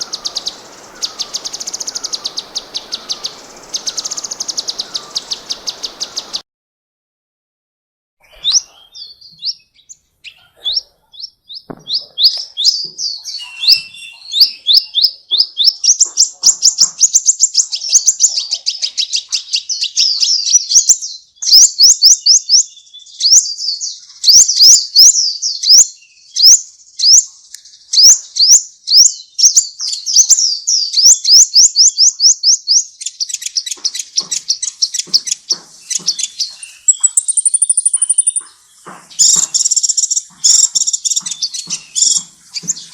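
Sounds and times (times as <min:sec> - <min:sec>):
sharp bird clicking notes: 0:00.0 - 0:06.4, 0:33.3 - 0:38.6, 0:39.2 - 0:42.9
songbird singing: 0:00.0 - 0:06.4, 0:08.2 - 0:42.9.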